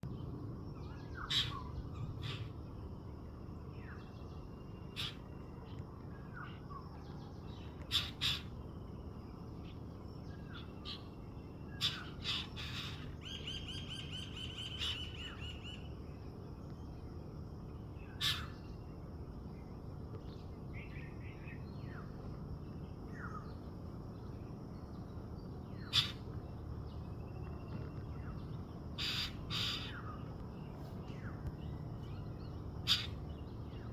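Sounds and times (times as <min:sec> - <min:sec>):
low background rumble: 0:00.0 - 0:33.9
bird trill: 0:00.8 - 0:02.7, 0:07.9 - 0:08.6, 0:09.7 - 0:15.9, 0:25.7 - 0:26.3, 0:27.1 - 0:30.2, 0:31.6 - 0:33.9
harsh bird calls: 0:00.8 - 0:02.8, 0:04.8 - 0:06.8, 0:07.5 - 0:08.7, 0:09.7 - 0:16.0, 0:17.9 - 0:18.8, 0:25.4 - 0:33.9.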